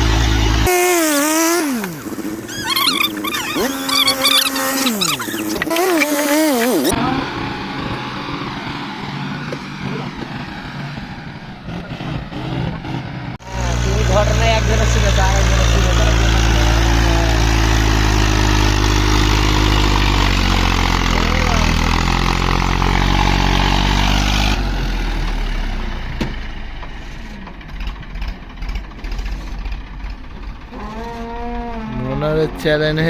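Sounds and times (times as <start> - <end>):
rough engine noise: 0.0 - 33.0
tractor diesel engine droning: 0.0 - 33.0.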